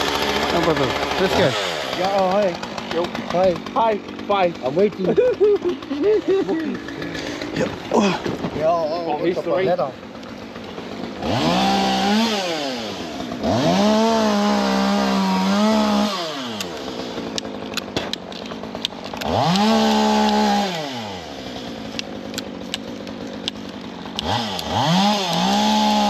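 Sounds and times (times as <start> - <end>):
chainsaw revving: 0.0 - 26.0
sharp clicks: 16.6 - 20.4, 21.9 - 25.6.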